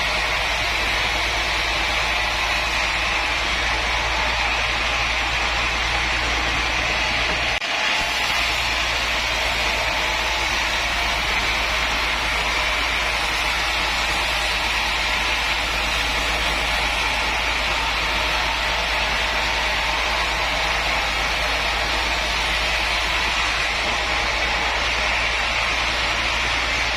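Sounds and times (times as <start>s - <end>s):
machine humming and hissing: 0.0s - 26.9s.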